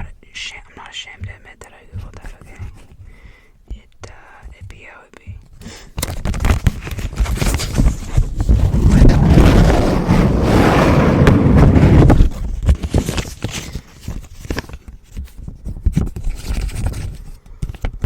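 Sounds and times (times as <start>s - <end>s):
paper bill rubbing microphone: 7.0s - 13.3s.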